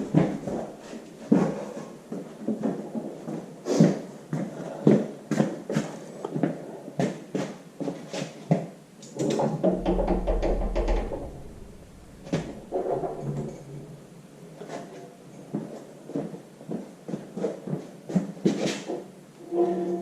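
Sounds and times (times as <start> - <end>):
metal knocks and clicks: 9.1 - 13.7
metal squeaks and creaks: 19.4 - 20.0.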